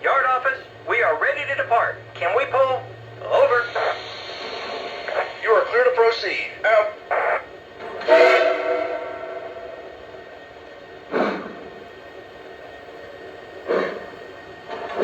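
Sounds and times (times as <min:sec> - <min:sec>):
steam chuffs: 0:03.2 - 0:06.5, 0:07.1 - 0:12.2, 0:13.5 - 0:15.0
steam whistle: 0:08.0 - 0:09.9.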